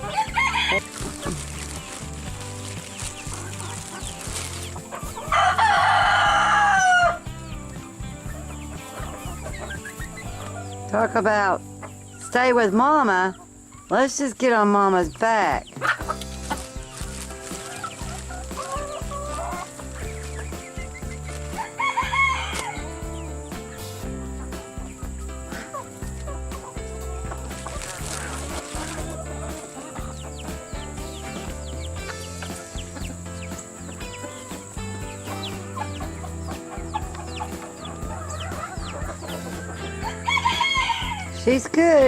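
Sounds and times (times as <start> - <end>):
rooster crowing: 0.0 - 0.9, 5.3 - 7.2, 21.6 - 22.9, 39.9 - 41.3
background music of low notes: 0.0 - 42.0
chickens calling: 0.0 - 42.0.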